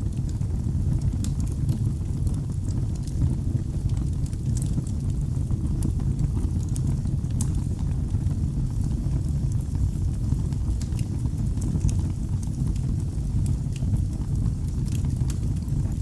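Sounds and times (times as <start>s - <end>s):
fire snapping and popping: 0.0s - 16.0s
low rumble of flames: 0.0s - 16.0s.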